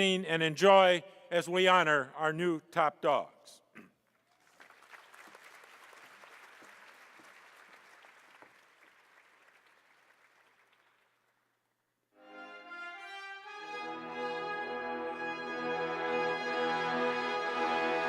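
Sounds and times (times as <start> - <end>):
faint audience applause: 4.2 - 11.5
orchestral music with brass: 12.2 - 18.0.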